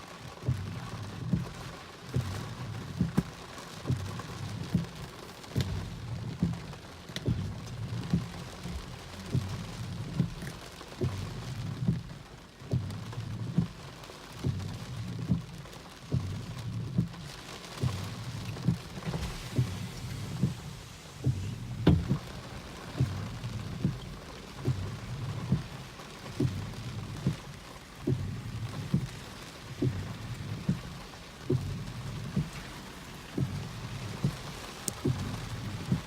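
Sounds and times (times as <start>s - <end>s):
steady wind hiss: 17.8s - 36.0s.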